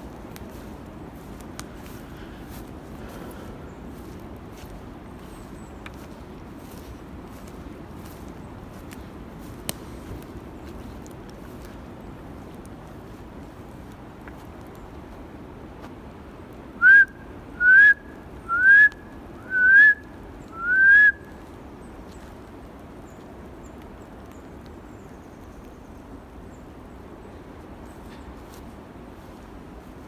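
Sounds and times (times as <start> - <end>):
person whistling upward notes: 16.8 - 20.0, 20.6 - 21.2.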